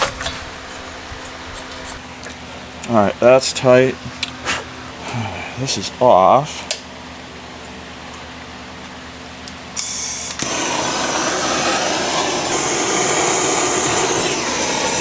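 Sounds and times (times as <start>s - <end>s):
gas hissing: 9.8s - 15.0s
rushing torch flame: 10.4s - 15.0s.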